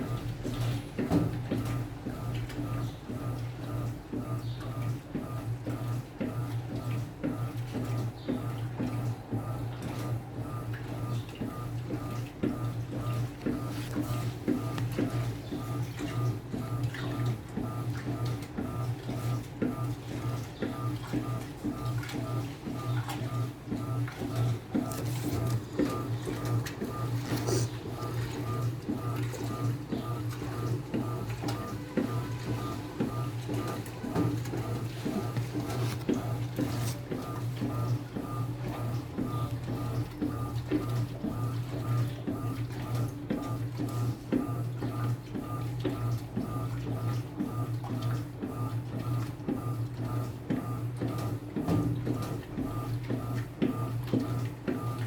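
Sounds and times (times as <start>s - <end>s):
washing machine motor hum: 0.0s - 55.0s
water and clothes sloshing: 0.0s - 55.0s
drum whirring and knocking: 10.9s - 45.0s, 50.5s - 54.9s.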